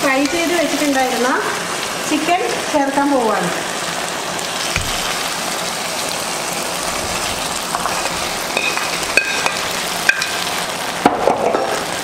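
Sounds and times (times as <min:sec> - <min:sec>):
onions sizzling in a pan: 0:00.0 - 0:12.0.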